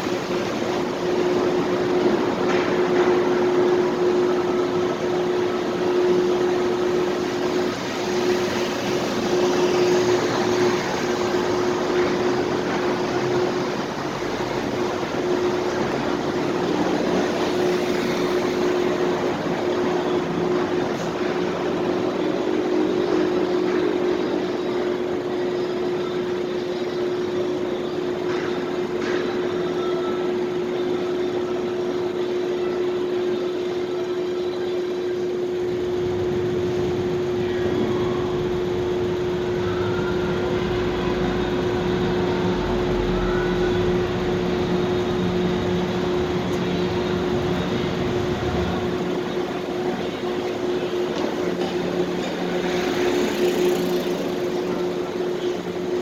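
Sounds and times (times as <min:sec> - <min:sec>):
droning tone: 0:00.0 - 0:56.0
machinery noise: 0:00.0 - 0:56.0
mechanical hum: 0:00.0 - 0:56.0
vehicle engine rumble: 0:34.2 - 0:56.0.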